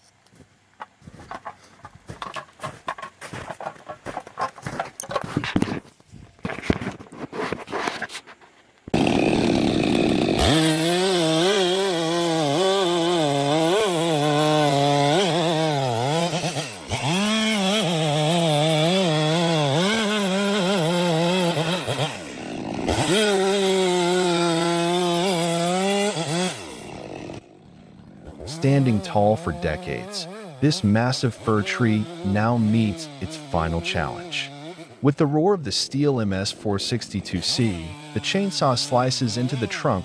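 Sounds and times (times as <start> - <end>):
chainsaw cutting wood: 0.8 - 8.3, 8.9 - 35.2, 35.8 - 40.0.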